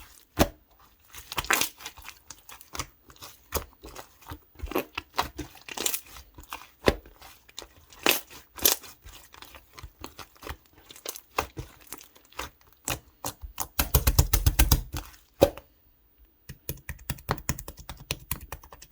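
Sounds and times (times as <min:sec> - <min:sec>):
foam bead slime crackling: 0:00.0 - 0:13.3.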